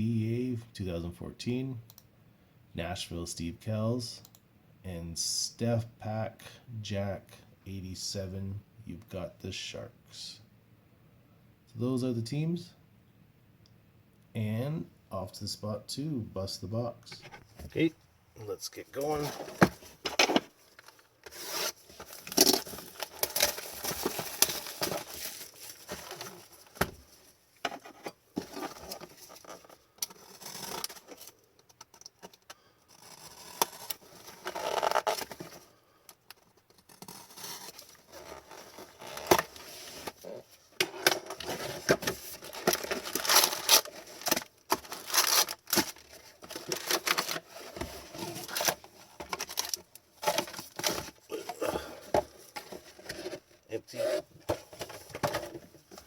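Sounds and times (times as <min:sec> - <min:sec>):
wrapping crinkling: 0:20.6 - 0:27.3, 0:42.2 - 0:51.3
cardboard box tearing: 0:41.4 - 0:48.8.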